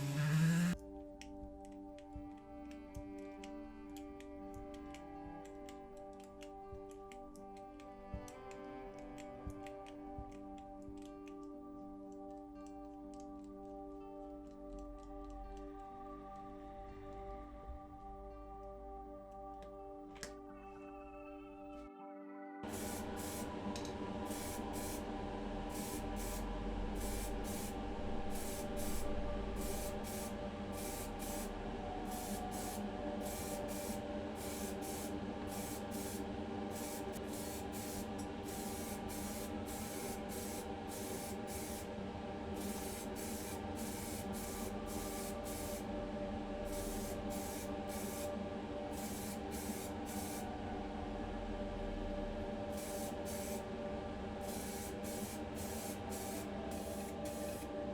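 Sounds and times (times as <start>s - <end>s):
spray paint hissing bursts: 0.0s - 0.8s, 22.6s - 23.6s, 24.2s - 41.9s, 42.6s - 45.9s, 46.6s - 48.3s, 48.9s - 50.4s, 52.7s - 53.7s, 54.4s - 57.7s
steady humming drone: 0.0s - 14.3s, 22.6s - 57.9s.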